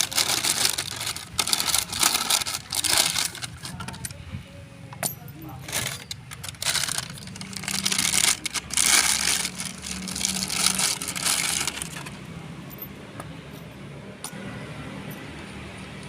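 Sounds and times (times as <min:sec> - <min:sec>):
metallic rattling and clattering: 0:00.0 - 0:04.2, 0:05.0 - 0:12.9.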